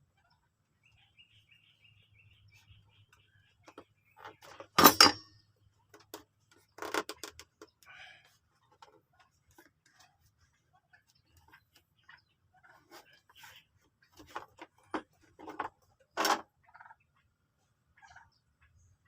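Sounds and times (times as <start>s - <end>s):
knocks and clatter of objects: 3.6s - 7.8s, 14.1s - 16.5s.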